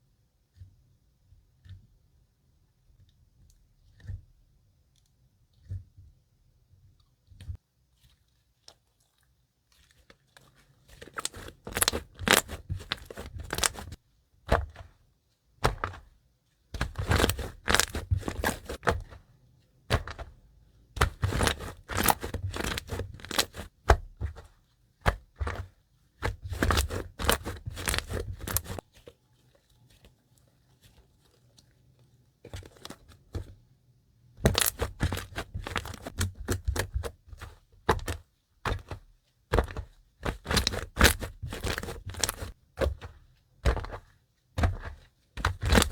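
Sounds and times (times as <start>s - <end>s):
slime crackling and popping: 11.0s - 14.0s, 26.5s - 28.8s, 34.4s - 36.8s.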